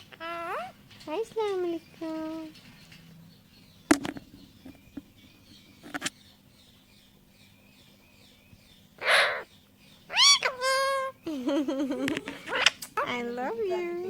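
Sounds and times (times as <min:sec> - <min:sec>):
parrot call: 0:00.0 - 0:00.8, 0:09.0 - 0:14.0
parrot squawking: 0:00.0 - 0:00.8, 0:09.0 - 0:11.3, 0:12.2 - 0:14.0.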